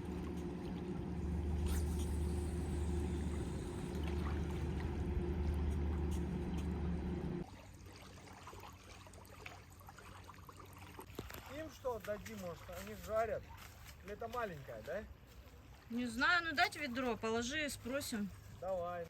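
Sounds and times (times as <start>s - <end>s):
low engine hum: 0.0s - 7.8s
water sounds: 0.0s - 18.9s.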